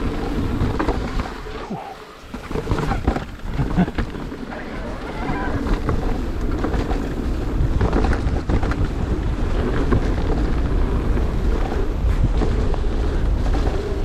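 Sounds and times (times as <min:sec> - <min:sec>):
bike clattering over rough ground: 0:00.0 - 0:14.0
bike tyres on wet trail: 0:00.0 - 0:14.0
wind buffeting microphone: 0:00.0 - 0:14.0.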